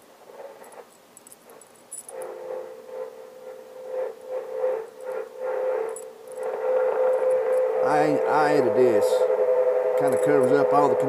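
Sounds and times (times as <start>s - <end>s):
radio static hiss: 2.1s - 9.4s
steady whistling tone: 2.1s - 11.0s.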